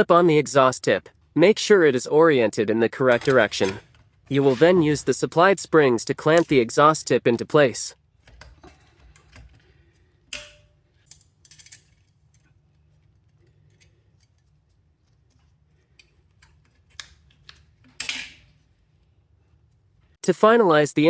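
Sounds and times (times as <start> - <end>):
metallic clicks and snaps: 10.3 - 12.6.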